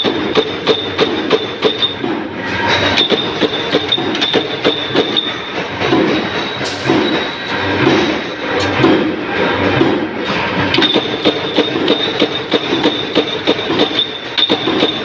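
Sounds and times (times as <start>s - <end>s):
punch press stamping: 0.0s - 2.2s, 3.0s - 6.2s, 10.7s - 15.0s
steady high machine whine: 0.0s - 15.0s.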